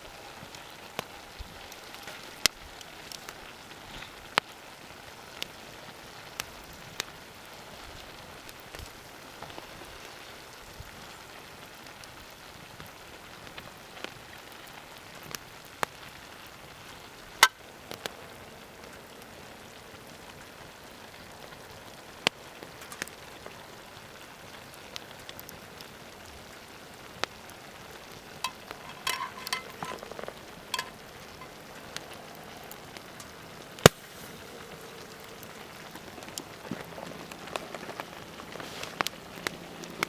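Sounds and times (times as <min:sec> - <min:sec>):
food sizzling in a pan: 0:00.0 - 0:40.0
clicks and clatter: 0:28.4 - 0:31.5.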